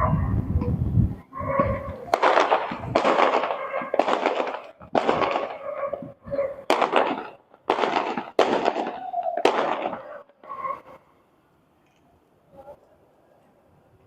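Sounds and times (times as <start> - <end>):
fireworks shells bursting: 1.6 - 11.0.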